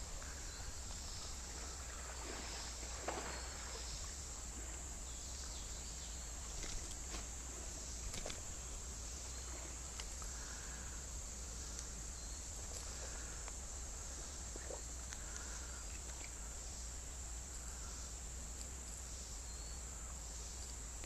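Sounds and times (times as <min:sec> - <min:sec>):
light water splashes: 0:00.0 - 0:17.7
crickets and insects trilling: 0:00.0 - 0:21.0
faint clicks: 0:09.9 - 0:10.4, 0:11.7 - 0:11.9, 0:15.0 - 0:16.4.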